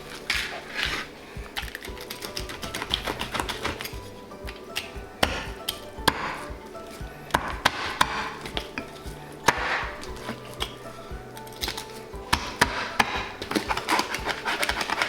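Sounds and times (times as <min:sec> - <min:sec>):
background music: 0:00.0 - 0:15.0
knife chopping through fish bone: 0:11.6 - 0:15.0.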